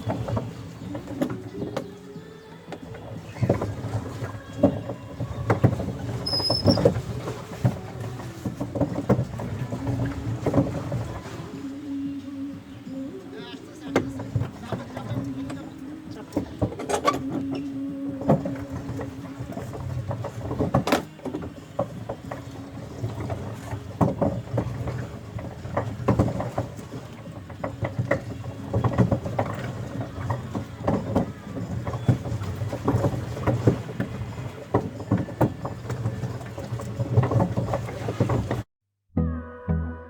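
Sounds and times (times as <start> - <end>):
knocking and clatter: 2.7 - 11.2, 18.2 - 38.7.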